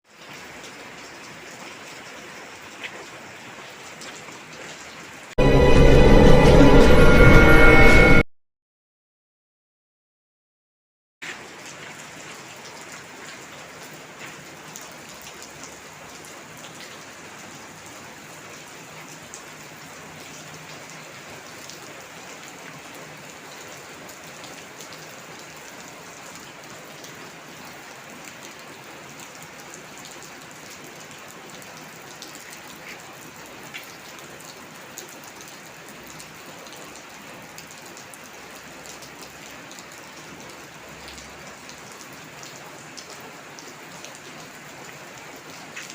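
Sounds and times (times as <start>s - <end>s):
steady rain falling: 0.0s - 5.8s, 11.2s - 45.9s.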